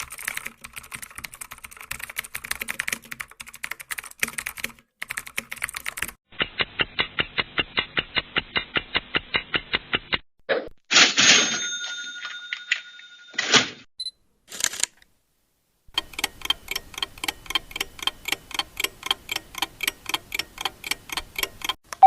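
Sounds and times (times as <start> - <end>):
fast keyboard typing: 0.0 - 9.6
even run of clicks: 0.0 - 10.2, 15.9 - 22.0
loud bell-like ring: 11.5 - 13.4.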